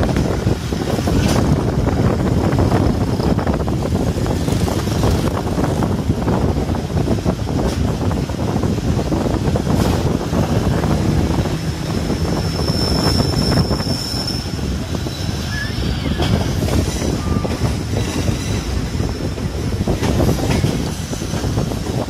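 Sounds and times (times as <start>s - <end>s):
train wheels rumbling and rattling: 0.0s - 22.0s
high wheel squeal: 11.8s - 19.3s.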